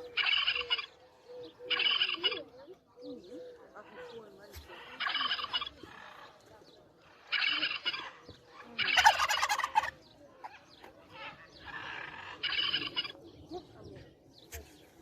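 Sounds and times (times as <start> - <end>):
turkey gobbling: 0.0 - 2.5, 4.5 - 6.4, 7.2 - 13.2.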